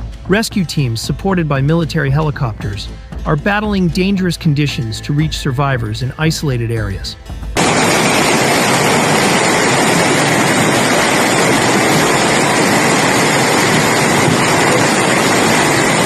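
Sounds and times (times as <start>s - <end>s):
floodwater rushing: 7.6s - 16.0s.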